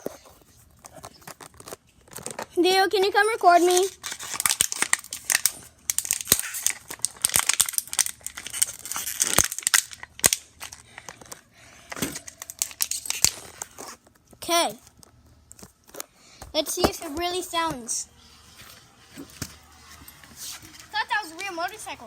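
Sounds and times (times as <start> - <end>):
plastic bottle crinkling: 3.8 - 14.2.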